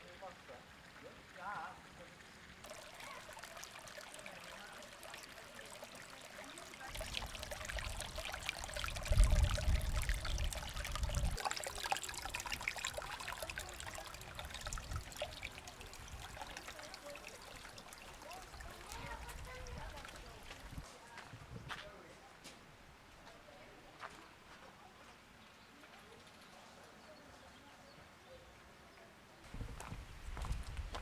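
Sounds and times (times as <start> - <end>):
water trickling and splashing: 0.0 - 21.3, 29.4 - 31.0.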